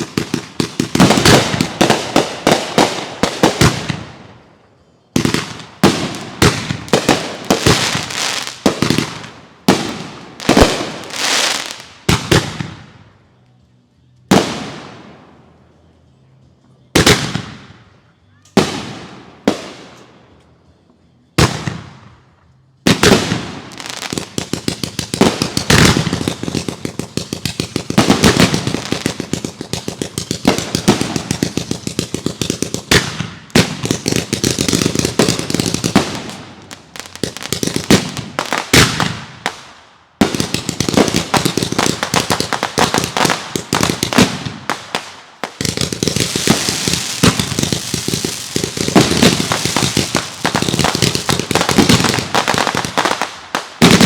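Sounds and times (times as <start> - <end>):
rapid firework pops and crackling: 0.0 - 4.0, 22.9 - 54.0
firework bangs with echo: 22.9 - 39.6, 40.2 - 54.0.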